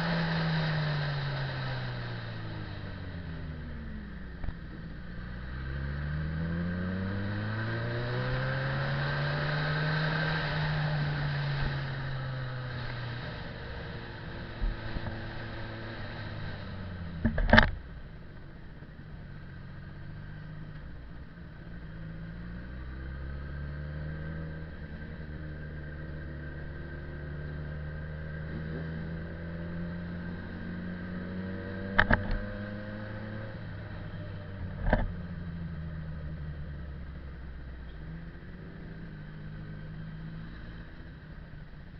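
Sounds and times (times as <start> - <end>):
motorcycle engine running: 6.6 - 22.3.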